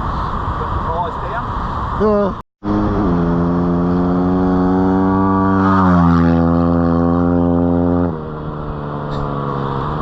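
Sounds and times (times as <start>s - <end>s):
vehicle engine at high revs: 2.6s - 10.0s.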